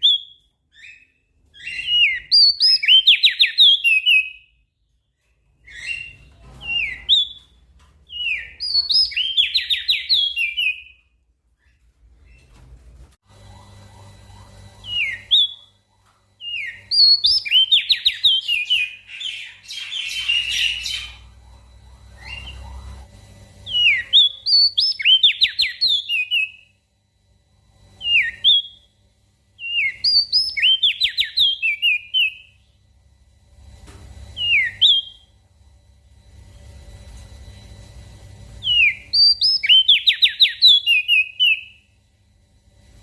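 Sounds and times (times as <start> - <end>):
bird whistling song: 0.0 - 4.6, 5.6 - 11.0, 14.8 - 15.7, 16.4 - 21.4, 22.0 - 23.0, 23.6 - 26.7, 28.0 - 28.9, 29.6 - 32.6, 34.4 - 35.3, 38.6 - 41.8.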